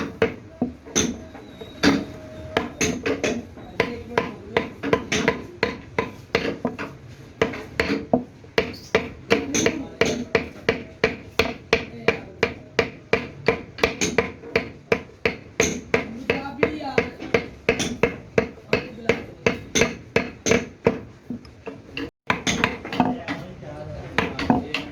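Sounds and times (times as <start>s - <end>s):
hammer blows ringing: 0.0s - 6.1s.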